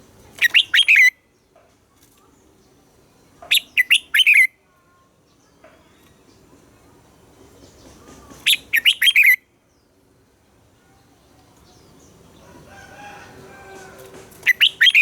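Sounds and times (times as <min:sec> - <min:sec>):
bird singing whistled notes: 0:00.4 - 0:01.2, 0:03.5 - 0:04.6, 0:08.4 - 0:09.5, 0:14.4 - 0:15.0.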